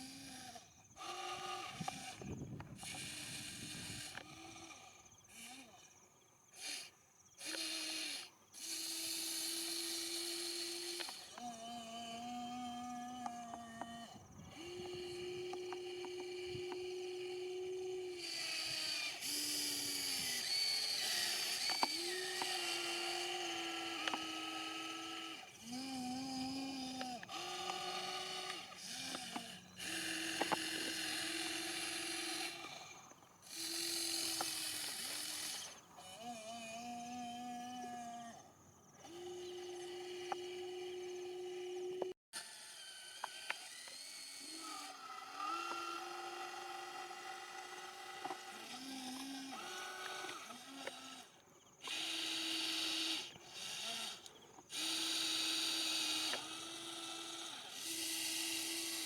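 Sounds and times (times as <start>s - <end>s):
small electric motors whining: 0.0s - 59.0s
sharp clicks: 19.1s - 23.3s, 23.9s - 24.4s, 26.9s - 32.9s.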